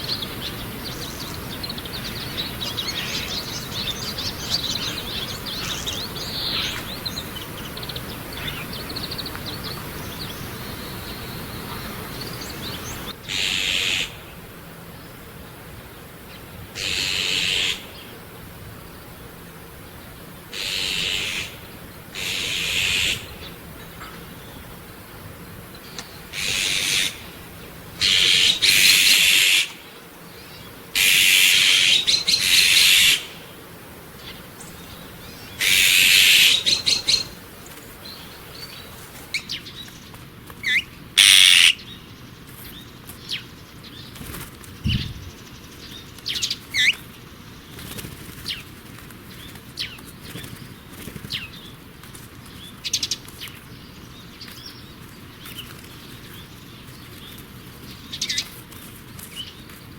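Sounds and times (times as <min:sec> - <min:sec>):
bird screeching: 0:26.4 - 0:27.2, 0:28.0 - 0:29.8, 0:31.0 - 0:33.4, 0:35.6 - 0:37.3, 0:40.7 - 0:41.8.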